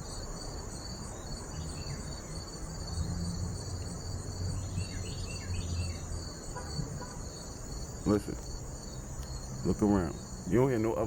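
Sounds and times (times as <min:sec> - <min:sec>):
crickets chirping: 0:00.0 - 0:11.0
bird chirps: 0:01.1 - 0:03.1, 0:04.5 - 0:06.8.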